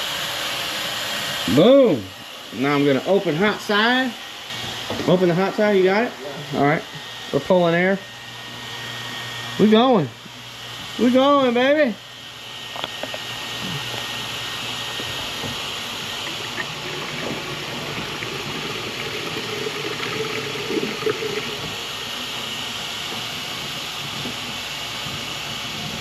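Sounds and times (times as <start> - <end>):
water rushing through drain hose: 15.5 - 23.1.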